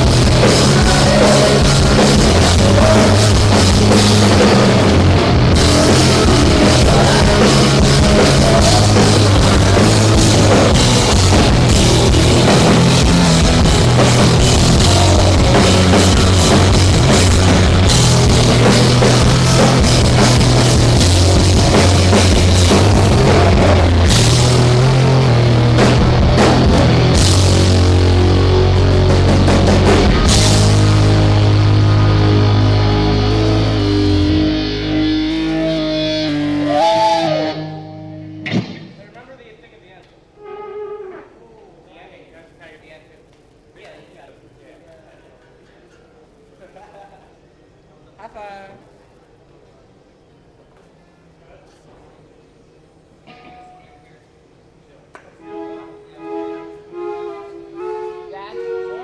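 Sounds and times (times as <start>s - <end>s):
electric guitar: 0.0s - 39.0s
bass guitar: 0.0s - 39.2s
drum kit: 0.0s - 39.2s.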